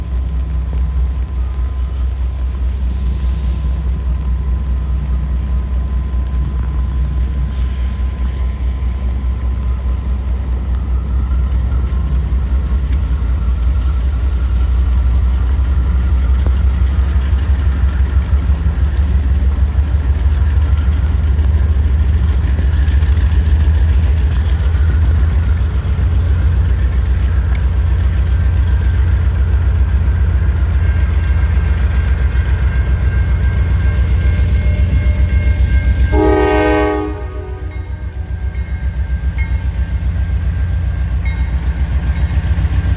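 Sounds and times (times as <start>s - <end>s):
freight train rumbling: 0.0s - 42.9s
wheels on rail: 0.0s - 42.9s
train air horn chord: 36.0s - 38.3s.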